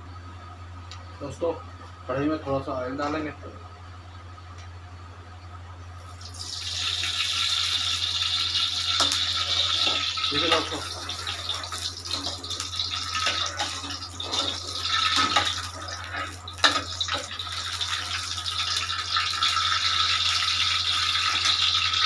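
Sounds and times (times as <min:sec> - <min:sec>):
cooking oil sizzling: 0:06.0 - 0:22.0
oil crackles: 0:06.0 - 0:22.0.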